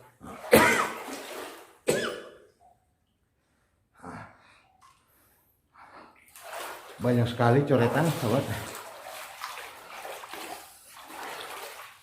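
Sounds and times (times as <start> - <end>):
person coughing: 0.4 - 1.0, 1.8 - 2.5.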